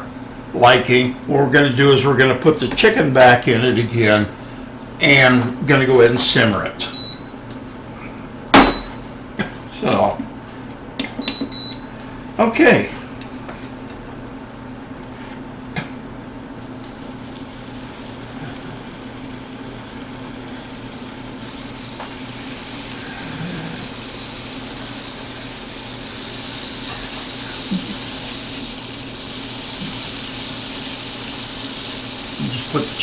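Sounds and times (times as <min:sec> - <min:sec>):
chicken frying in butter: 0:16.8 - 0:33.0.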